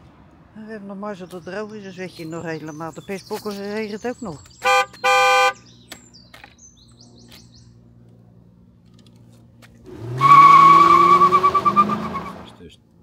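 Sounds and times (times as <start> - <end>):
birds chirping: 0.6 - 8.1.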